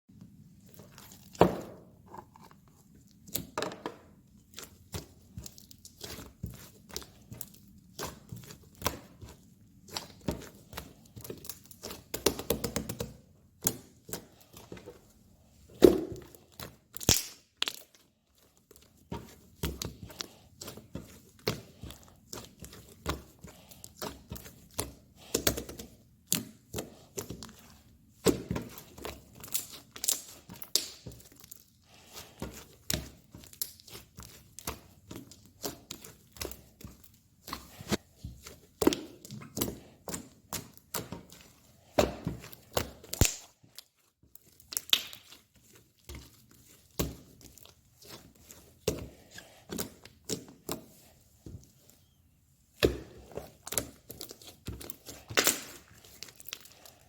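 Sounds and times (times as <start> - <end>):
slime sticky pops and crackles: 16.9 - 18.0, 29.4 - 31.1, 43.1 - 43.9, 44.6 - 45.4, 53.7 - 56.7.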